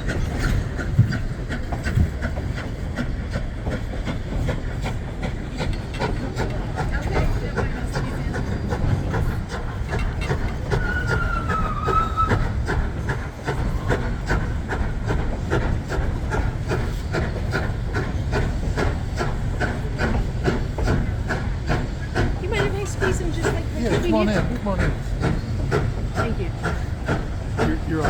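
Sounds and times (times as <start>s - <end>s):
clickety-clack over rail joints: 0.0s - 28.0s
train wheels rumbling on rail: 0.0s - 28.0s
thin wheel squeal: 10.7s - 12.4s.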